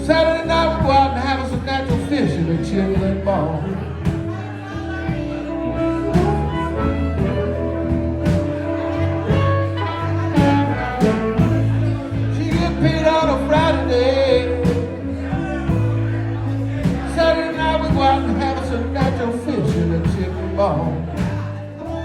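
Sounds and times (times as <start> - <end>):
bass line: 0.0 - 22.0
wavering lead melody: 3.8 - 18.7
drum hits: 6.1 - 11.9.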